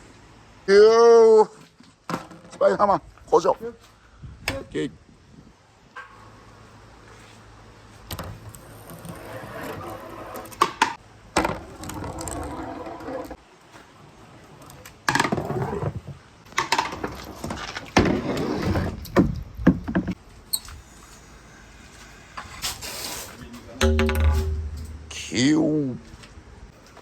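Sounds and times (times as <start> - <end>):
balls rolling down marble run: 8.5 - 10.5, 11.4 - 13.4.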